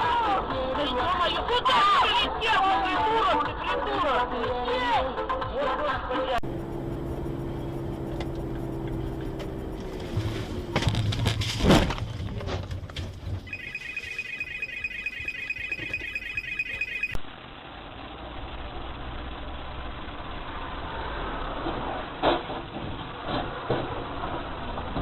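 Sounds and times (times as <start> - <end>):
car driving road noise: 6.2 - 14.4, 15.2 - 25.0
car crash impacts: 10.2 - 13.4
high electronic tone: 13.5 - 17.2.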